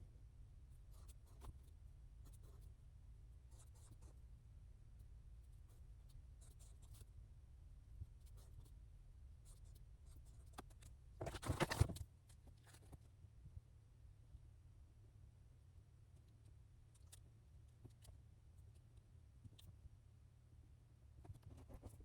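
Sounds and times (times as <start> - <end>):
low room hum: 0.0 - 22.0
pen scratching on paper: 3.5 - 4.2, 6.4 - 7.1, 21.2 - 22.0.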